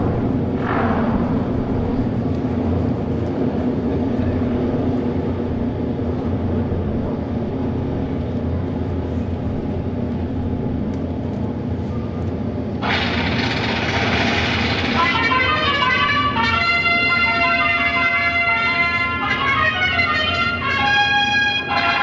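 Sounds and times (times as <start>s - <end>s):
motorcycle engines droning: 0.0s - 22.0s
brass fanfare: 14.9s - 22.0s.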